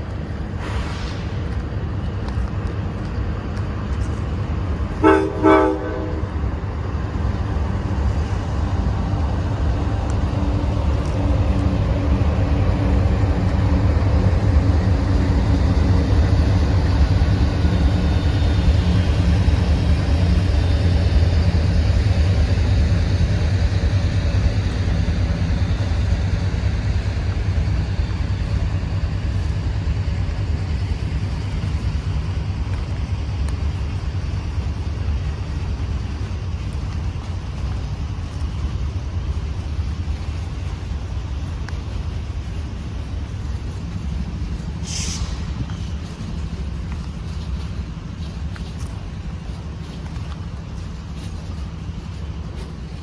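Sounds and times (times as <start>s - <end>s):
train rumbling past: 0.0s - 53.0s
locomotive horn blasts: 5.0s - 6.4s.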